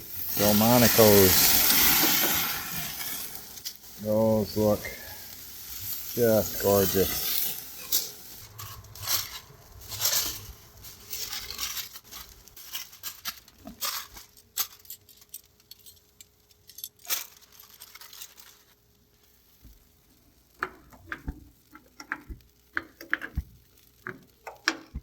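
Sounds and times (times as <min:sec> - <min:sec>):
metal tongs clicking on grill grate: 0:24.0 - 0:25.0.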